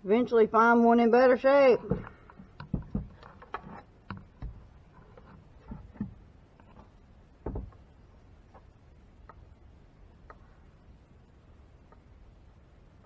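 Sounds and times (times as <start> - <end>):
plastic fuel tank knocks: 7.4 - 7.8.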